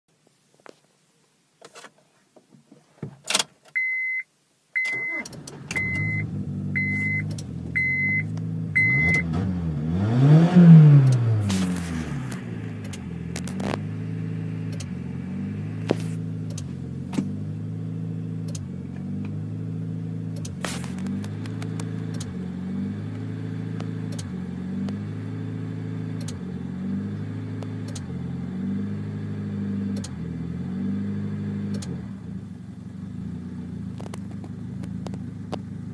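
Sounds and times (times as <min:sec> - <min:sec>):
car engine starting and idling: 0:04.8 - 0:35.9
dashboard chime beeping: 0:06.8 - 0:09.3.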